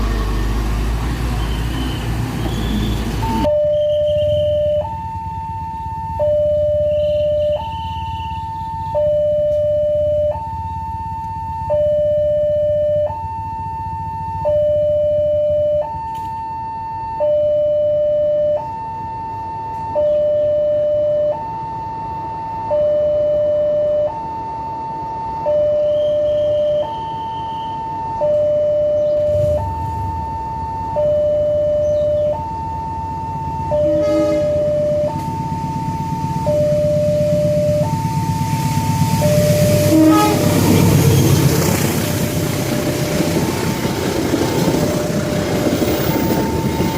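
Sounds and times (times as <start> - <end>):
railroad crossing two-tone alarm: 1.4 - 46.9
low rumble: 34.4 - 46.9.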